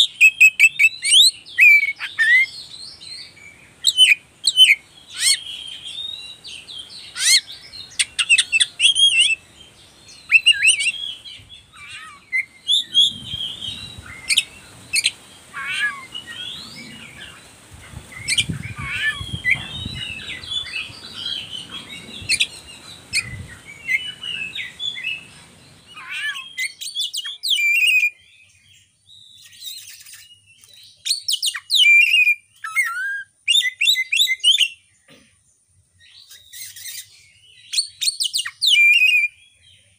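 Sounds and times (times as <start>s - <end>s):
bird singing whistled phrases: 0.0s - 2.6s, 7.2s - 9.4s, 10.2s - 17.4s, 25.9s - 28.3s, 29.2s - 34.8s, 36.2s - 39.4s.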